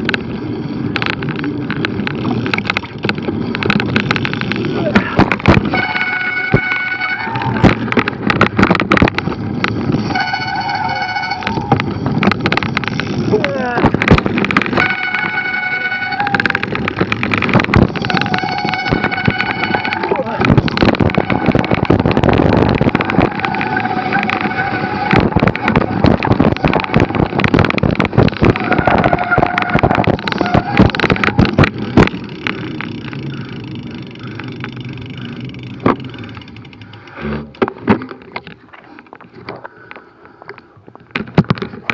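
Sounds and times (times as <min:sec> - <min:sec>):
mountain bike rattling over trail: 0:00.0 - 0:41.9
rush of riding: 0:00.0 - 0:41.9
high squeal: 0:05.6 - 0:07.6, 0:09.9 - 0:12.2, 0:14.7 - 0:16.8, 0:18.0 - 0:20.4, 0:23.1 - 0:26.0
wind on microphone: 0:16.2 - 0:34.2.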